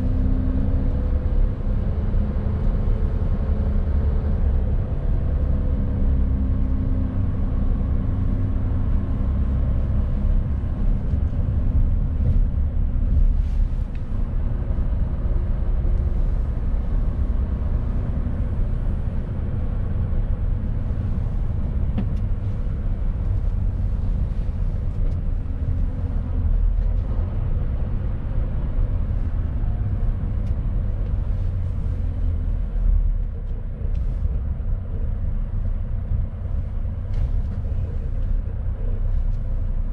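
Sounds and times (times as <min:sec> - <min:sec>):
road rumble: 0:00.0 - 0:39.9
truck engine drone: 0:00.0 - 0:39.9.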